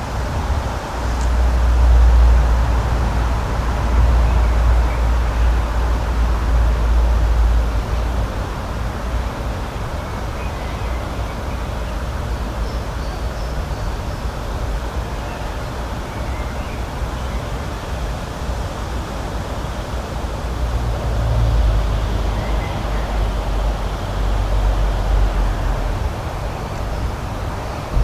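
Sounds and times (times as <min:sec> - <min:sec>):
steady rushing outdoor noise: 0:00.0 - 0:28.0.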